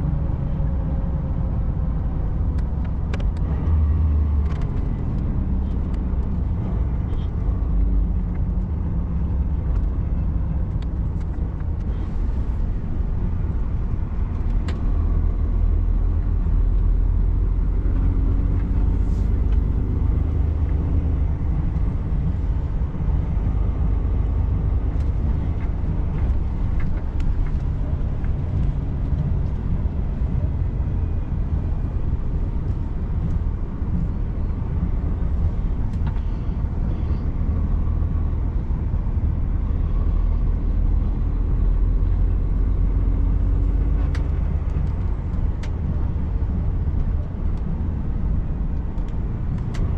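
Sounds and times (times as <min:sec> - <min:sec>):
truck engine and road rumble: 0:00.0 - 0:49.9.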